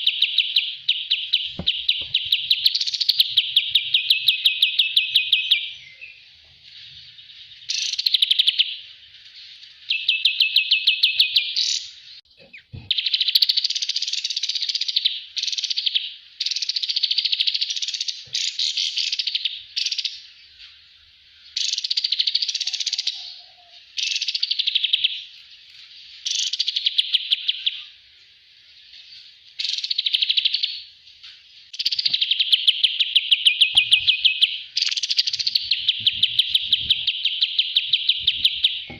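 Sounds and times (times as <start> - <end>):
songbird trilling: 0.0 - 6.2, 31.7 - 38.9.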